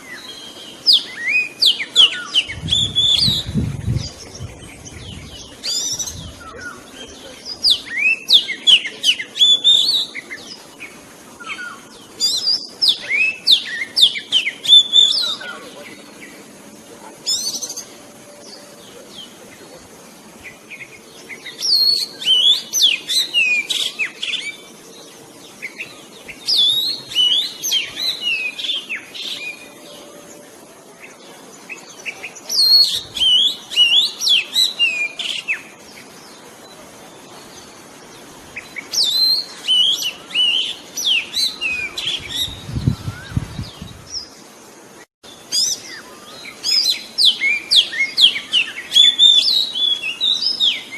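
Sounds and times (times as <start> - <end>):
bird singing whistled phrases: 0.0 - 4.5, 7.5 - 10.4, 11.4 - 15.6, 38.7 - 44.0, 45.5 - 50.9.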